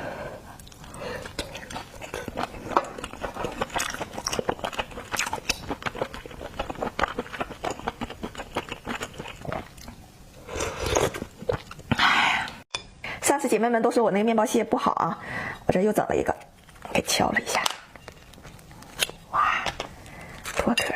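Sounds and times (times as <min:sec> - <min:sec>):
biting and chewing food: 0:00.6 - 0:10.0.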